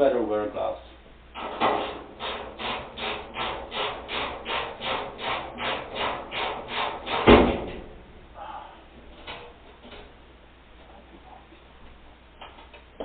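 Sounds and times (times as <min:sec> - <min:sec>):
ratchet driver rasping: 0:01.4 - 0:07.3
loud knock: 0:01.5 - 0:08.0.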